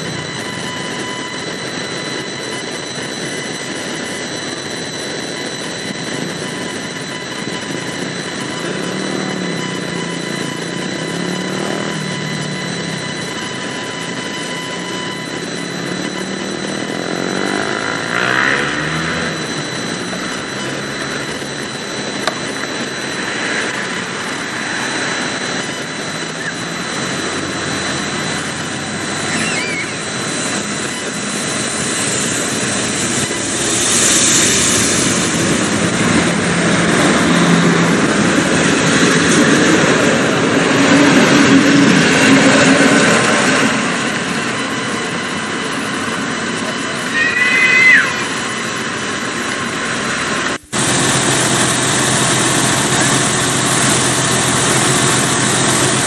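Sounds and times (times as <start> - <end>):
diesel train engine running: 0.0 - 56.0
train wheels rolling on rails: 30.3 - 47.3.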